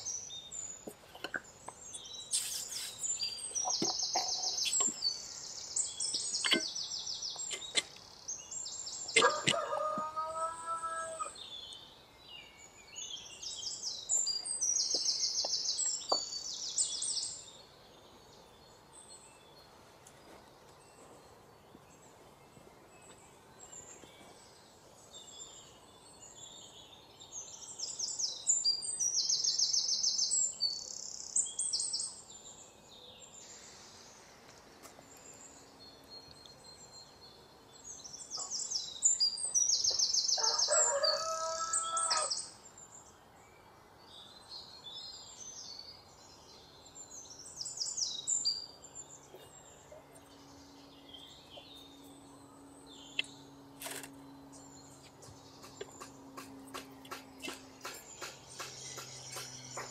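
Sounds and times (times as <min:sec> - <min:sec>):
songbirds chirping: 0:00.0 - 0:59.9
rooster crowing: 0:09.2 - 0:11.4, 0:40.3 - 0:42.5.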